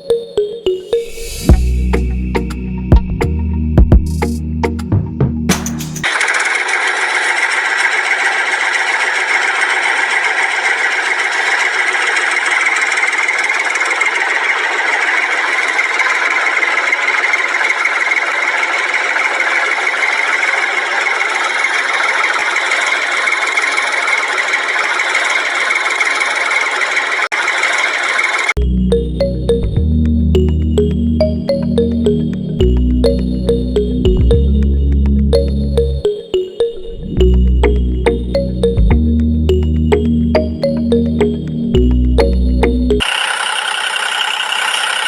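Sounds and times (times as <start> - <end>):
electric power tool working wood: 6.0 - 28.6, 43.0 - 45.0.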